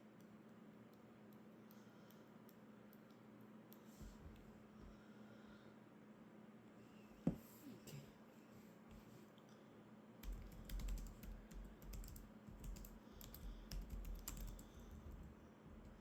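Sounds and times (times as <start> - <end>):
typing on computer keyboard: 10.2 - 16.0.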